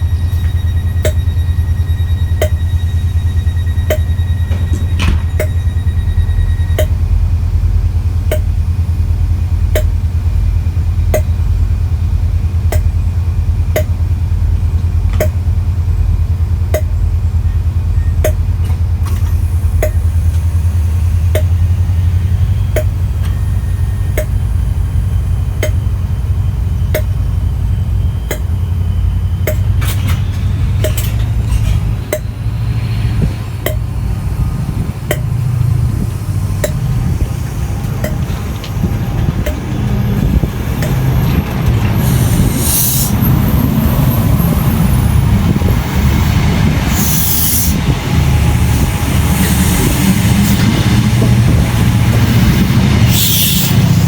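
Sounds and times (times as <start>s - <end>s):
sharp ticking: 0.0s - 7.3s, 8.2s - 8.6s, 11.0s - 11.8s, 21.3s - 29.8s, 33.6s - 41.2s
diesel train engine rumble: 0.0s - 54.0s
clicks: 26.9s - 27.2s, 29.4s - 32.4s, 35.1s - 35.4s, 36.6s - 42.0s.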